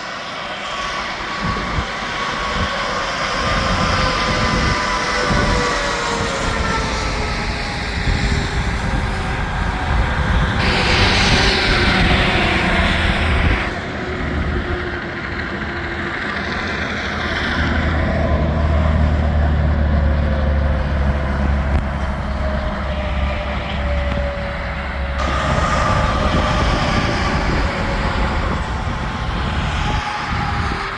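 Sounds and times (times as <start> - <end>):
loud rush: 0.0 - 15.9, 25.2 - 30.9
deep engine drone: 0.0 - 30.9
trucks passing at speed: 0.0 - 30.9.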